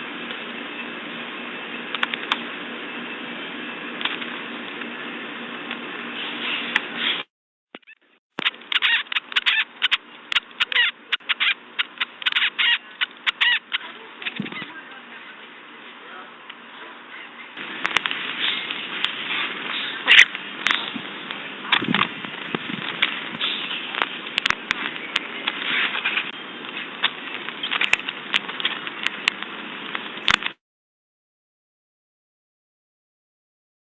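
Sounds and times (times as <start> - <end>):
sharp clicks and crackles: 1.9 - 2.4, 4.0 - 4.9, 17.6 - 30.6
birds chirping: 7.8 - 15.4, 17.1 - 29.4.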